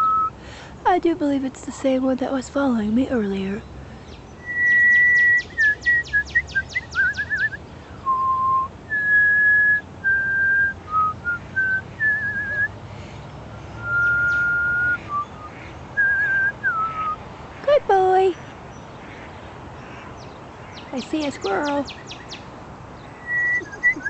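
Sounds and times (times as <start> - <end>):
person whistling bird calls: 0.0 - 0.4, 4.4 - 12.7, 13.8 - 17.2, 23.2 - 24.0.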